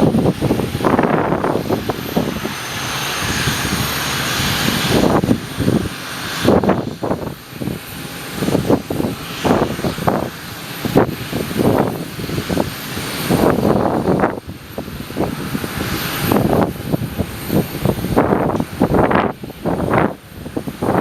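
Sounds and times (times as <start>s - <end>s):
airliner engine noise: 0.0s - 21.0s
wind buffeting microphone: 0.0s - 21.0s.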